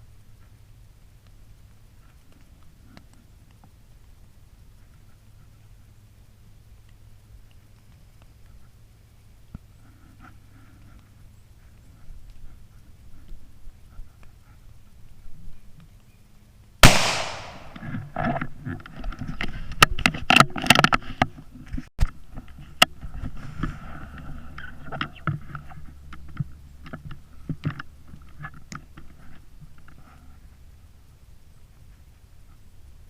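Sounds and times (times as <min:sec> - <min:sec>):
rifle shot: 0:16.8 - 0:17.9
clicks and rustles: 0:16.8 - 0:30.5.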